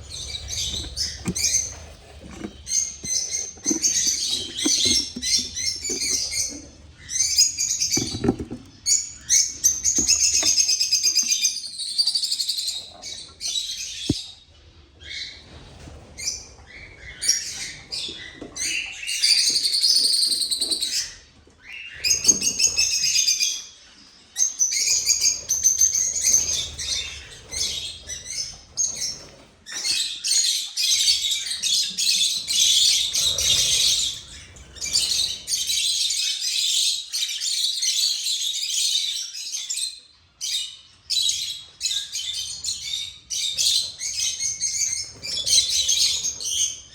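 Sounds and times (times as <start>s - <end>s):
small cage birds chirping: 0.0s - 46.9s.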